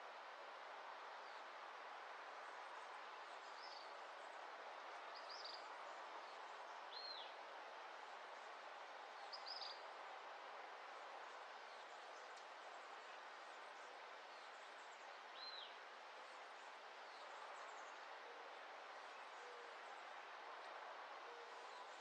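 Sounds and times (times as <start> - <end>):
soft outdoor hiss: 0.0 - 22.0.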